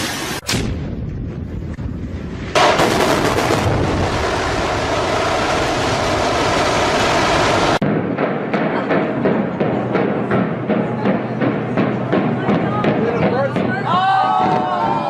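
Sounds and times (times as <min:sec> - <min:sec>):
low rumble: 0:00.4 - 0:13.8
building collapsing crash: 0:02.2 - 0:13.7.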